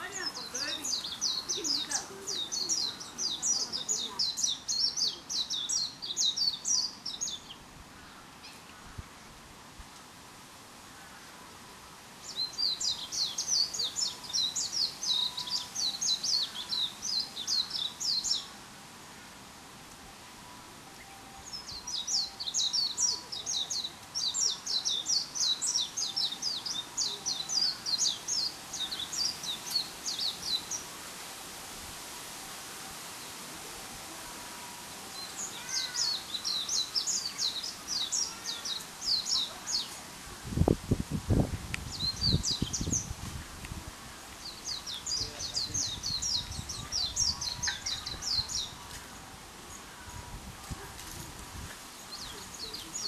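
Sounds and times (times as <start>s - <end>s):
small songbirds chirping: 0.0s - 9.4s, 10.8s - 19.4s, 20.2s - 53.0s
faint steady hiss: 0.0s - 53.0s.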